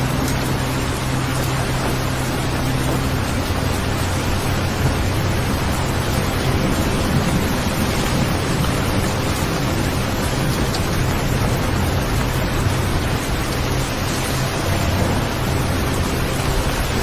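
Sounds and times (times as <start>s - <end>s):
deep low rumble: 0.0s - 17.0s
steady rain hiss: 0.0s - 17.0s.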